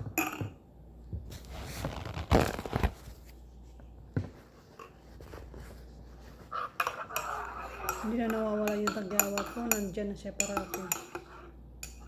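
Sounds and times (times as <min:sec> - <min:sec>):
rustling and crinkling: 0:01.1 - 0:06.7.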